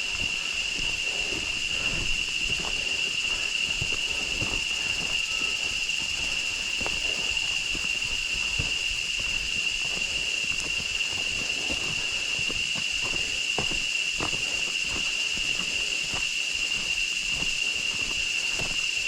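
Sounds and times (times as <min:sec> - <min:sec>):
footsteps on trail: 0:00.0 - 0:19.0
high insect chorus: 0:00.0 - 0:19.0.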